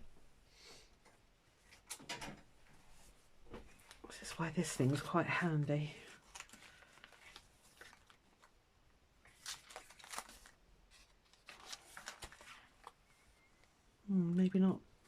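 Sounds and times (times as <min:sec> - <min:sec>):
paper pages rustling: 0:06.0 - 0:08.6, 0:09.2 - 0:13.1.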